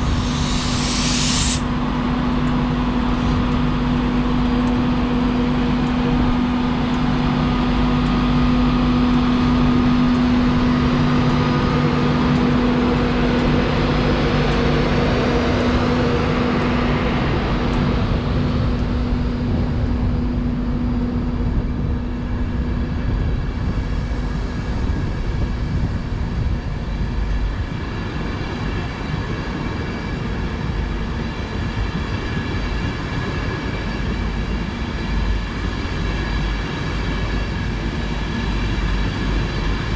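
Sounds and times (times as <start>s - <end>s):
faint high whine: 0.0s - 4.6s
locomotive equipment humming: 0.0s - 25.0s.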